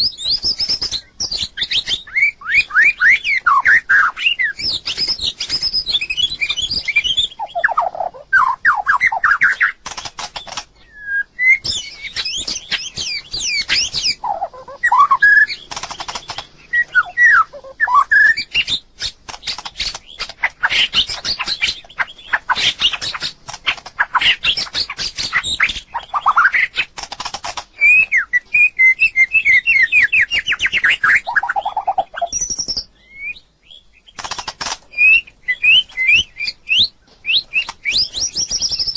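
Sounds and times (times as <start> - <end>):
bird singing whistled phrases: 0.0 - 9.8, 10.4 - 15.7, 16.6 - 23.3, 27.8 - 34.1, 34.9 - 38.9
bird rattling clicking notes: 9.5 - 10.7, 15.6 - 16.5, 34.2 - 34.8.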